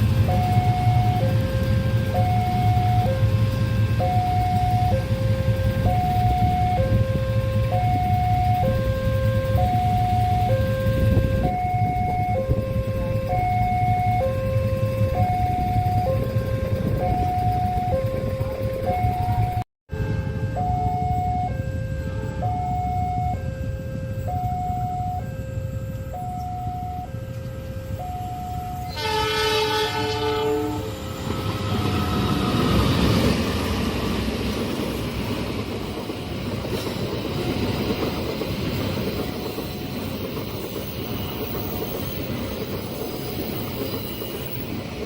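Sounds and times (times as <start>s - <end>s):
two-tone crossing alarm: 0.0s - 36.8s
train rumbling past: 0.0s - 45.0s
train horn blasting: 19.9s - 33.1s.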